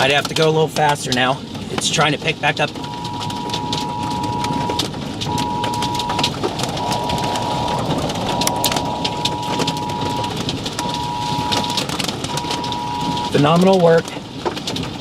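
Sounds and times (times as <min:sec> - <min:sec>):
rain and wind on a car: 0:00.0 - 0:15.0
electronic beep: 0:02.8 - 0:13.3.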